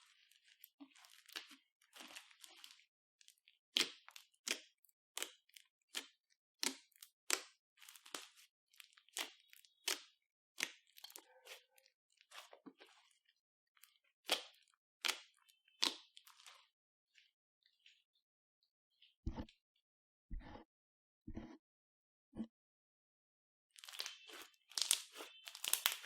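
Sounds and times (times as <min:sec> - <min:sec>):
slime squished by hand: 0:23.8 - 0:26.0.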